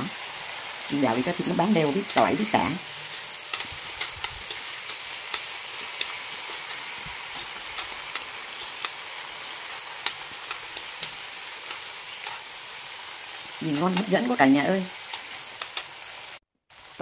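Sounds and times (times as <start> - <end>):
meat sizzling in a wok: 0.0 - 17.0
chopsticks clicking against a pan: 3.5 - 6.7, 7.3 - 9.0, 10.0 - 12.4, 15.1 - 15.9.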